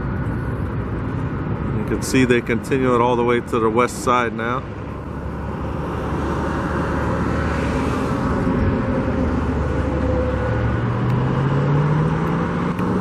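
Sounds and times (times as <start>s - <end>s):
passing vehicles rumble: 0.0s - 13.0s
engine rising in pitch: 5.2s - 13.0s.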